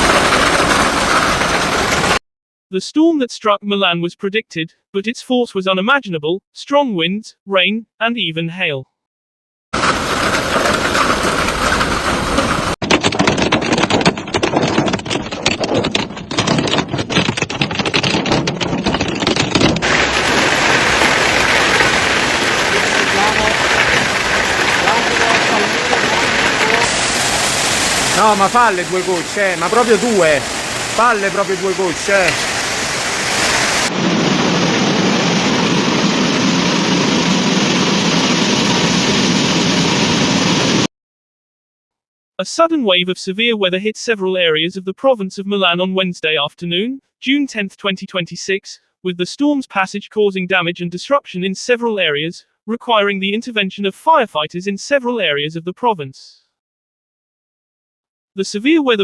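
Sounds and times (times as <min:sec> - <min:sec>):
hail clicking on hard surfaces: 0:00.0 - 0:02.2, 0:09.8 - 0:12.8, 0:13.4 - 0:33.9
heavy rain: 0:00.0 - 0:02.2, 0:09.8 - 0:12.8, 0:19.8 - 0:40.9
wind: 0:09.8 - 0:40.8.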